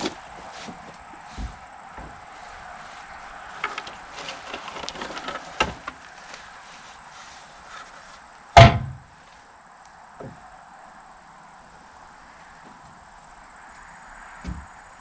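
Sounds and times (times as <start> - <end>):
wood and metal clattering: 0.0 - 9.1
insects chirping: 0.0 - 15.0
loud thump: 8.6 - 9.1.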